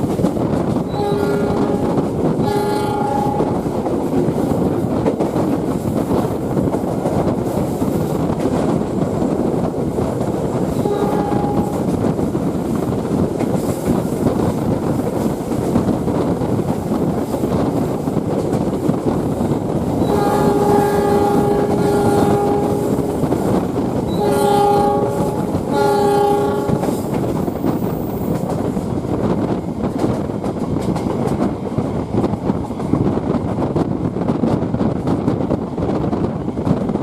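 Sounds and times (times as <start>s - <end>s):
train rumble and rail clatter: 0.0s - 37.0s
train horn blasts: 0.9s - 3.8s, 10.7s - 11.9s, 20.0s - 27.2s.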